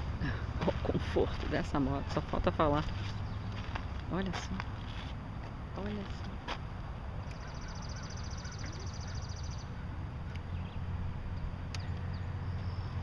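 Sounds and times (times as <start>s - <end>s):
low outdoor rumble: 0.0s - 13.0s
small bird trilling: 7.2s - 9.8s.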